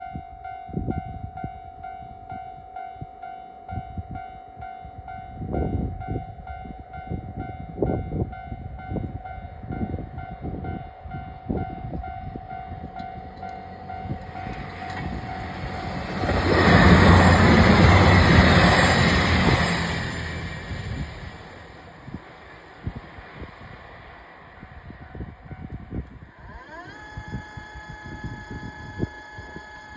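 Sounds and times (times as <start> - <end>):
level crossing warning bell: 0.0 - 21.7
diesel train passing: 3.2 - 26.6.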